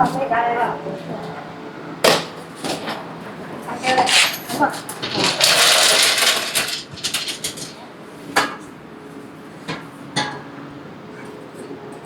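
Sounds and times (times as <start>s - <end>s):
metal tools rattling: 3.8s - 7.9s.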